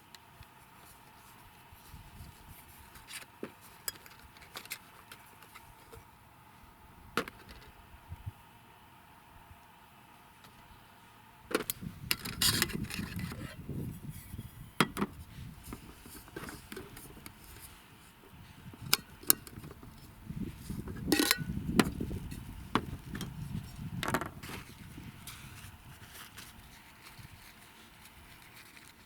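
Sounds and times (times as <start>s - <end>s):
knocks and rustling of handling: 14.8s - 17.8s.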